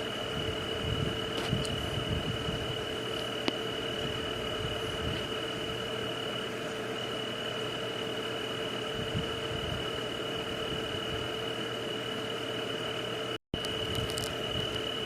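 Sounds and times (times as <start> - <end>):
high-pitched insect trill: 13.6 - 15.0.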